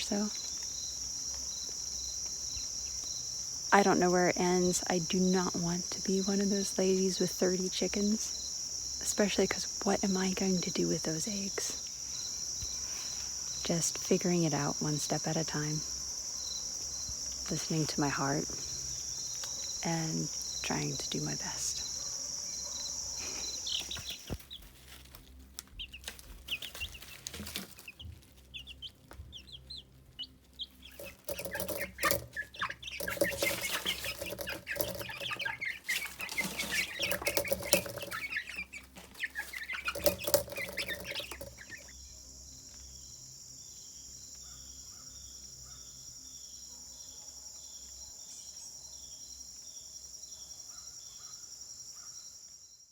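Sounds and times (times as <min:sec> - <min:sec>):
chickens clucking: 0:00.0 - 0:41.9
crickets chirring: 0:00.0 - 0:52.9.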